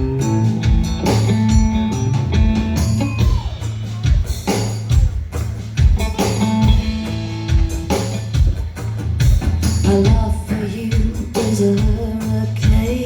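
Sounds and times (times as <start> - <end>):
electric guitar melody: 0.0 - 3.7, 5.8 - 8.6
drum kit beat: 0.0 - 13.0
live blues-rock band: 0.0 - 13.0.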